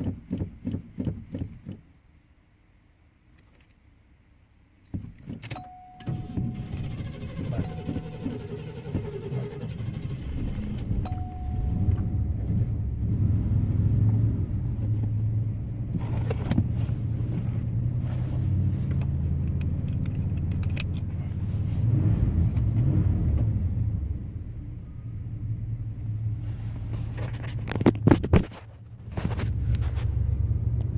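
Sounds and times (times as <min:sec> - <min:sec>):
car engine running: 0:06.0 - 0:30.9
short electronic beep: 0:10.9 - 0:12.4.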